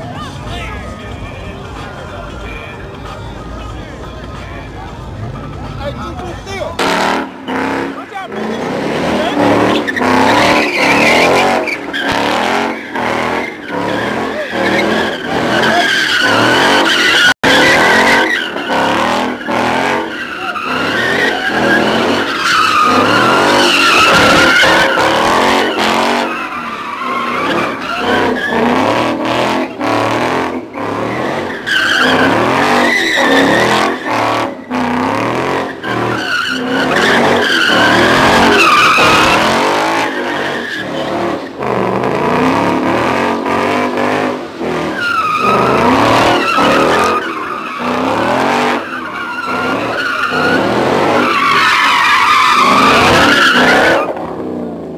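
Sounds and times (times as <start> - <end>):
tires squealing: 0.0 - 54.9
engine revving: 5.2 - 26.4, 27.0 - 48.9.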